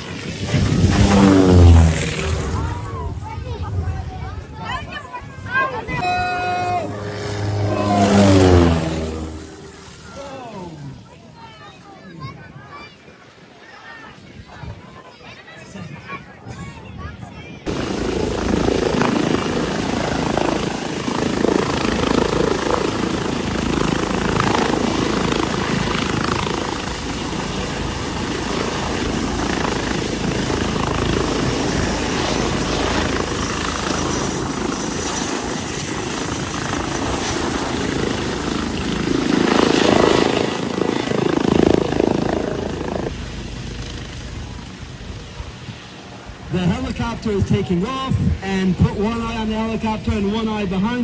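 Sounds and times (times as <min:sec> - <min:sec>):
helicopter rotor and turbine: 0:00.0 - 0:12.4, 0:16.6 - 0:51.0.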